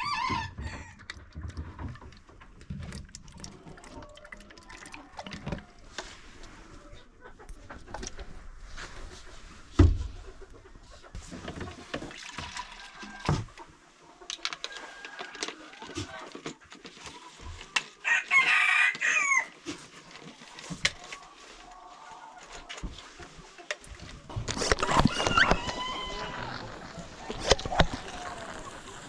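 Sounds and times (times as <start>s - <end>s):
rooster crowing: 0.0s - 1.0s, 18.0s - 19.5s, 24.9s - 29.0s
chickens clucking: 3.5s - 29.0s.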